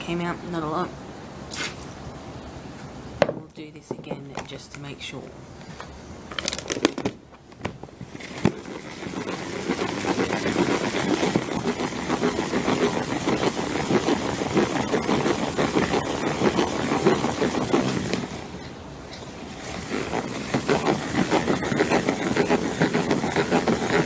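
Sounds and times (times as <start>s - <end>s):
salad spinner rattling whir: 8.0s - 24.0s.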